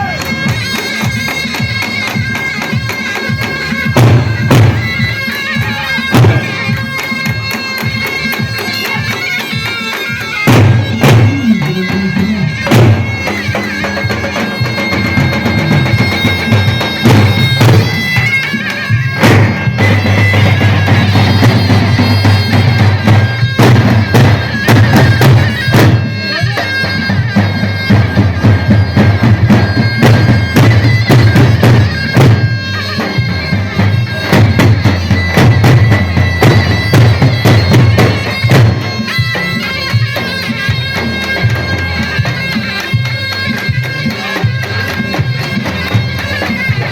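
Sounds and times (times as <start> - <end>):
shrill shawm melody: 0.0 - 46.9
heavy drum strikes: 1.1 - 5.2, 6.1 - 6.8, 10.4 - 26.2, 26.9 - 42.3.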